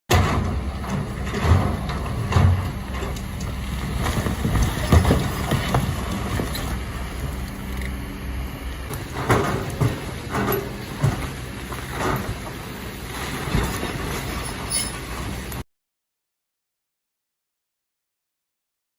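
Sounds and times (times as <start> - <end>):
rock and metal clattering: 0.1 - 7.5
excavator diesel engine: 0.1 - 15.6.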